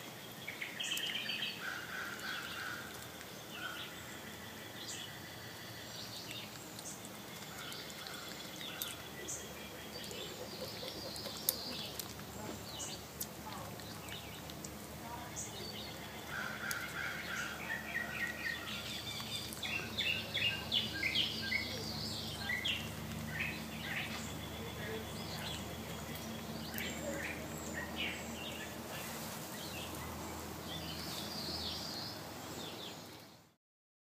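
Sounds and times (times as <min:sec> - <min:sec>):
small birds chirping: 0:00.0 - 0:33.6.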